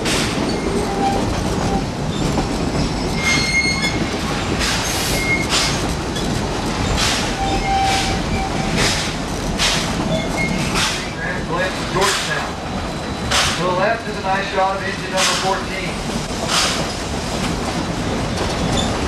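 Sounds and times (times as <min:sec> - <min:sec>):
train cars rumbling: 0:00.0 - 0:19.0
high-pitched wheel squeals: 0:03.0 - 0:04.0.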